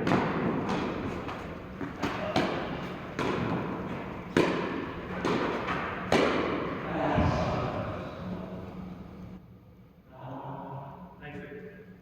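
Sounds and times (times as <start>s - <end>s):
tennis ball struck by rackets: 0.0s - 7.7s.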